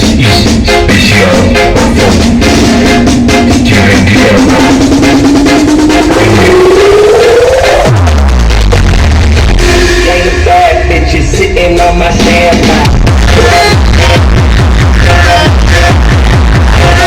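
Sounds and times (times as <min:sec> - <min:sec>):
loud music with drums and heavy bass: 0:00.0 - 0:17.0
tone sliding upward: 0:01.6 - 0:08.0.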